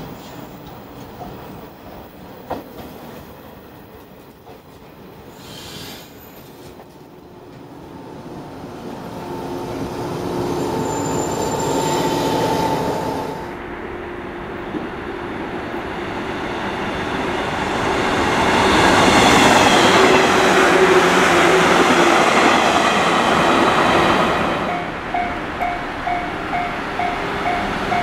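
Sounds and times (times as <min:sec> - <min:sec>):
short hiss: 0:05.3 - 0:06.6
electric train whine: 0:06.5 - 0:28.0.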